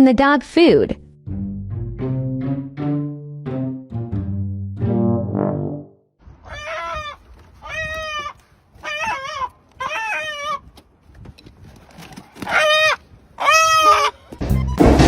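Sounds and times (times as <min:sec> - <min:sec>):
animal calling in short cries: 0:06.5 - 0:10.6, 0:12.5 - 0:14.3.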